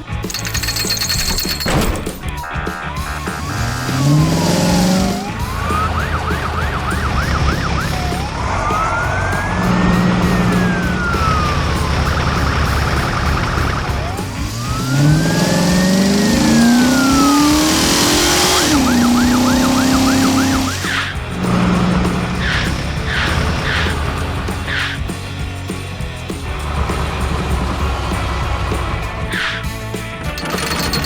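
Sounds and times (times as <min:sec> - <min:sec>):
background music: 0:00.0 - 0:31.0
engine revving: 0:00.0 - 0:31.0
police car siren: 0:02.5 - 0:21.1.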